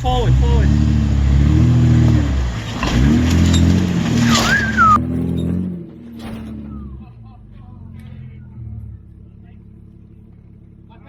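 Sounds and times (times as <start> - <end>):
engine revving under load: 0.0 - 7.1.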